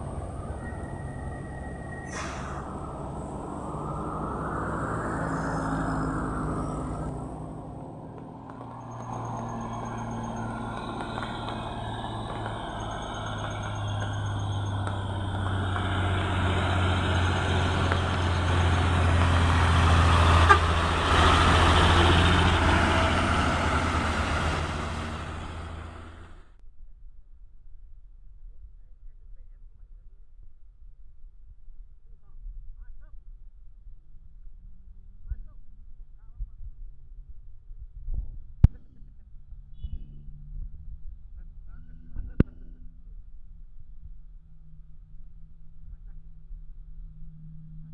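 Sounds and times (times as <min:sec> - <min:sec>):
truck diesel engine labouring: 0:00.0 - 0:26.6.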